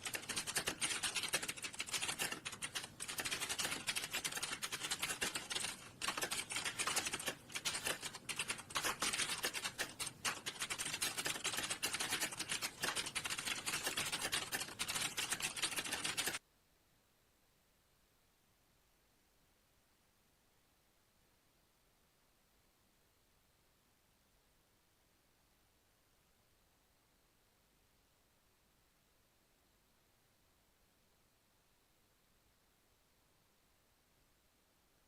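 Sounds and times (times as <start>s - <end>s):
fast typing on keyboard: 0.0s - 16.4s.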